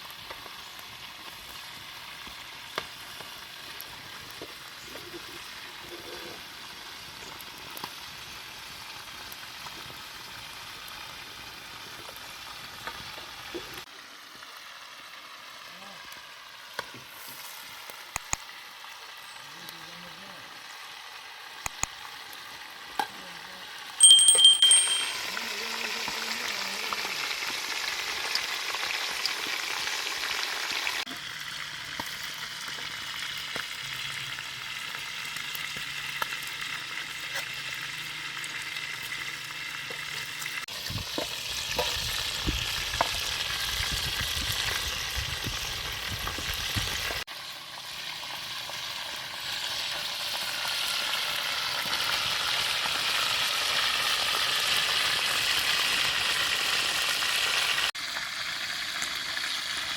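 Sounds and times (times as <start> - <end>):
food sizzling in oil: 0.0 - 59.9.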